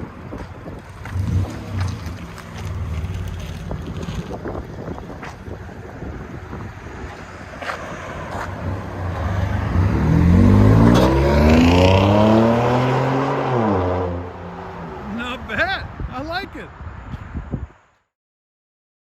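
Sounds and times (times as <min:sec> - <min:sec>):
truck engine accelerating: 0:06.1 - 0:15.2.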